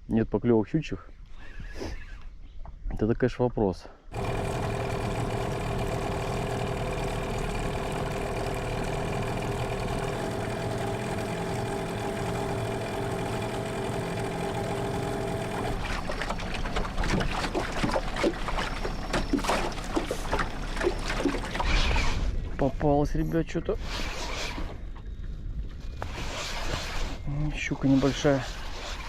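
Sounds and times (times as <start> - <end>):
boat motor humming: 4.1 - 22.2.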